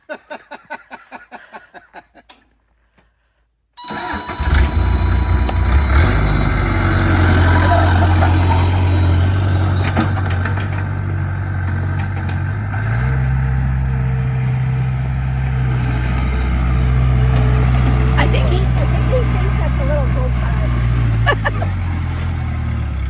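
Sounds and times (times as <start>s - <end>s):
heavy equipment engine running: 3.9s - 23.0s.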